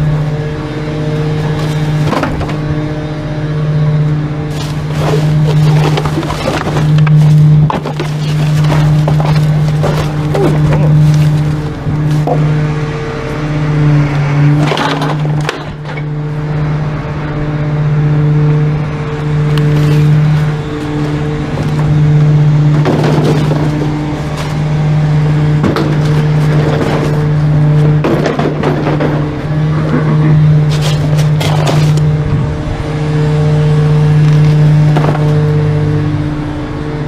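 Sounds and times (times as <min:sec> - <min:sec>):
truck engine droning: 0:00.0 - 0:37.0
clattering rattles: 0:04.5 - 0:12.4, 0:22.6 - 0:24.6.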